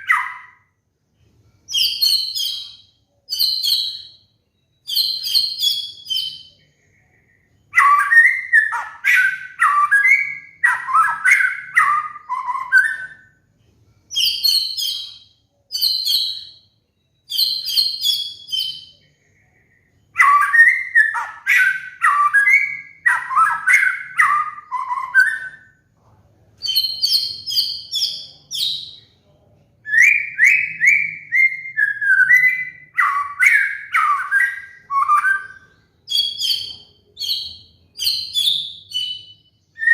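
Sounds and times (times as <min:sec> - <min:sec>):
songbird singing whistled phrases: 0:00.0 - 0:00.7, 0:01.7 - 0:13.4, 0:14.1 - 0:25.8, 0:26.6 - 0:29.2, 0:29.8 - 0:39.9.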